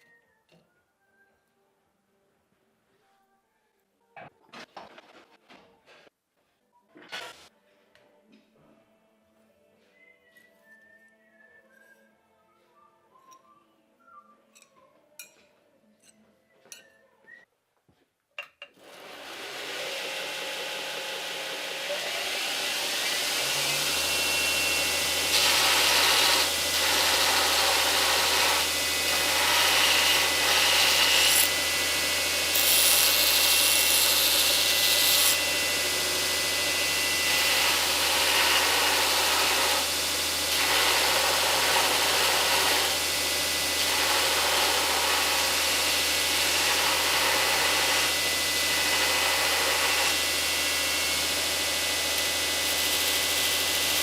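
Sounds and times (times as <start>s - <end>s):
power tool motor humming: 18.9s - 54.0s
grinding or sanding: 22.9s - 50.3s, 52.1s - 54.0s.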